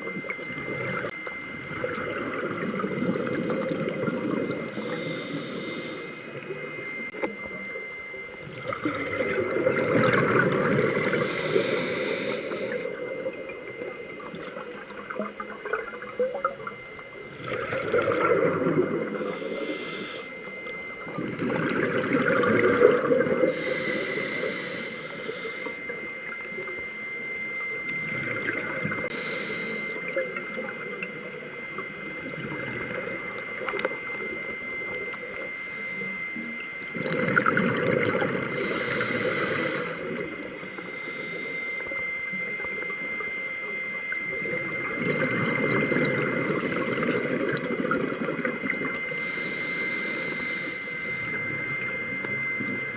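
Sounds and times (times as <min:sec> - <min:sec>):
steady high tone: 0:00.0 - 0:52.9
diver exhaling bubbles: 0:08.5 - 0:13.4, 0:17.3 - 0:24.5, 0:37.0 - 0:40.3.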